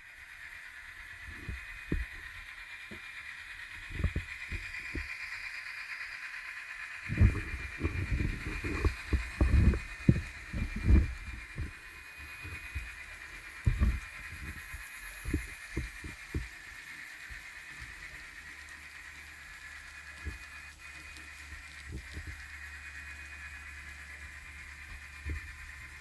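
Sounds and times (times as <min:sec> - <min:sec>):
low hum: 0:00.0 - 0:26.0
model train motor whine: 0:00.0 - 0:26.0
low thumps: 0:07.1 - 0:11.8, 0:13.6 - 0:14.6.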